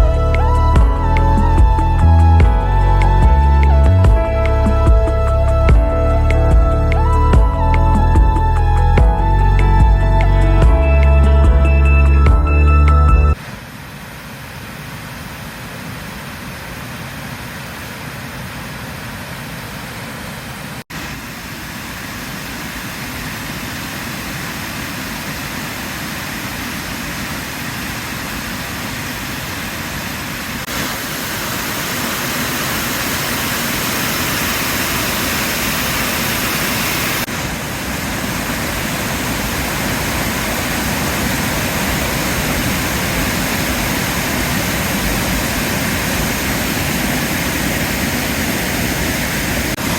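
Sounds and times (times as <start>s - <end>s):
floodwater rushing over a dam: 13.4s - 49.9s.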